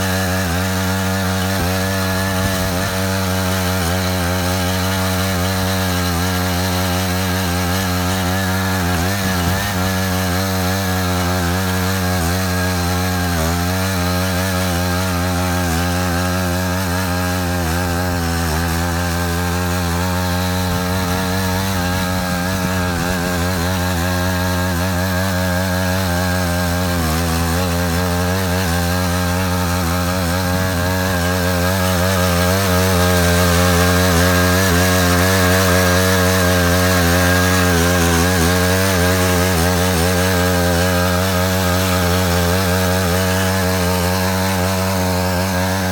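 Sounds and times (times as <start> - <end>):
power tiller engine running: 0.0 - 45.9.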